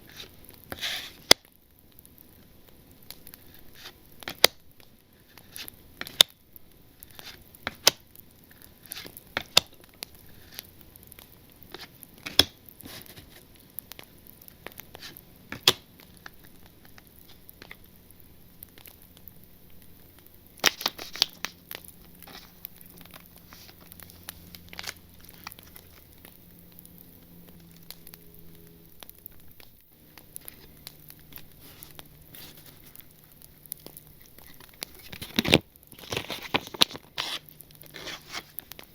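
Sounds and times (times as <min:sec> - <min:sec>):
foil wrappers crinkling: 0:07.0 - 0:38.9
foil wrappers being torn: 0:18.6 - 0:38.9.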